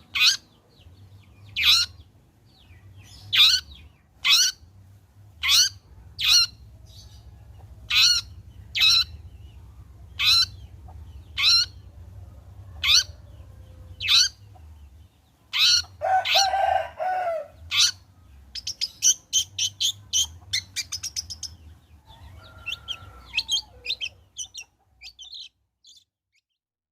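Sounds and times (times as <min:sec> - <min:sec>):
faint low hum: 0:00.0 - 0:25.3
shrike singing sharp calls: 0:01.5 - 0:02.1, 0:03.0 - 0:04.7, 0:05.4 - 0:26.0.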